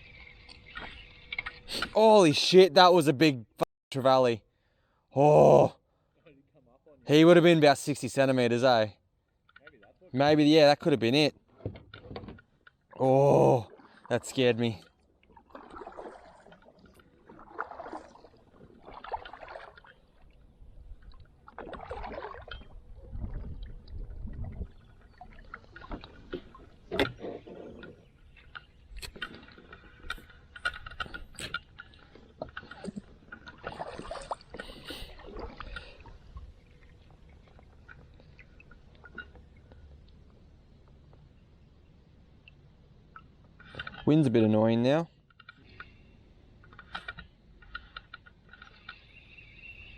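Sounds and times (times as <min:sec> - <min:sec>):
paddle strokes swishing through water: 0:13.6 - 0:41.1.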